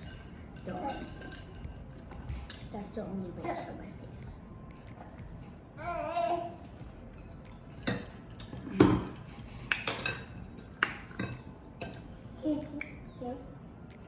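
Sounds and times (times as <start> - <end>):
cutlery clinking on plates: 0.0 - 2.7, 7.5 - 12.1.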